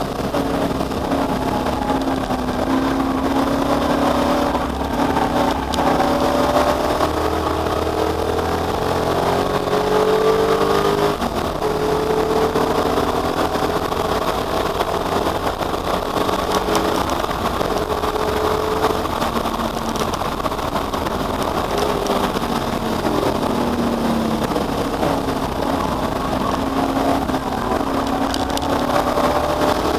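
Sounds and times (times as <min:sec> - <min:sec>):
race car engine accelerating hard: 0:00.0 - 0:29.9.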